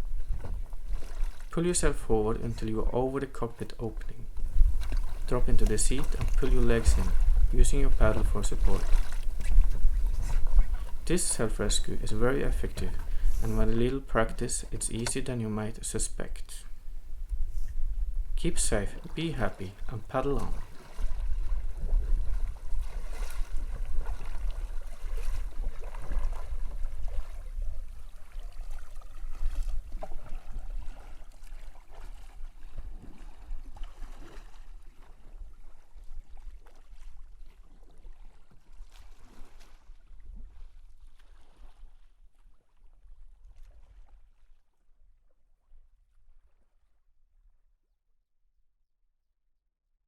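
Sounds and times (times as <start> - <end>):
wind on microphone: 0.0 - 1.4, 4.2 - 14.2, 16.7 - 19.1, 19.8 - 31.0
water splashing around a kayak: 0.0 - 47.0.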